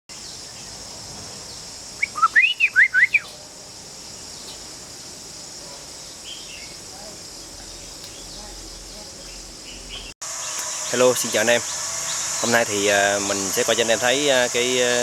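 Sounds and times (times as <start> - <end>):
steady high hiss: 0.1 - 15.0
bird singing whistled notes: 2.0 - 3.4.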